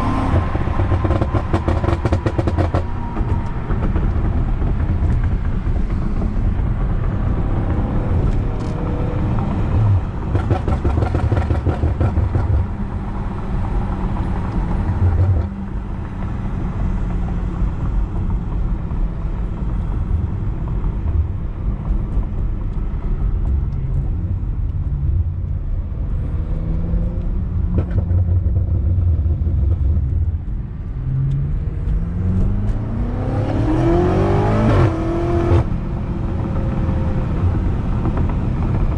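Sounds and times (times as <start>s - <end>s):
car engine running through loud exhaust: 0.0s - 38.9s
engine revving up: 31.1s - 35.7s.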